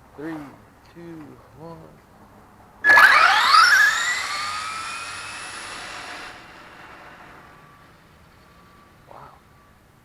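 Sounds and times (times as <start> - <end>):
electric motor high whine: 2.8 - 8.2.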